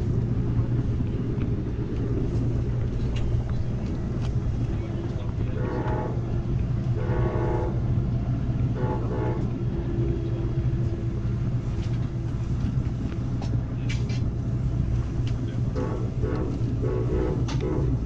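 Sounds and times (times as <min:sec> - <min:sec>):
train rumbling: 0:00.0 - 0:18.0
light clicks from rails: 0:00.9 - 0:06.8, 0:11.6 - 0:18.0
train horn blasts: 0:05.1 - 0:11.4, 0:15.7 - 0:18.0.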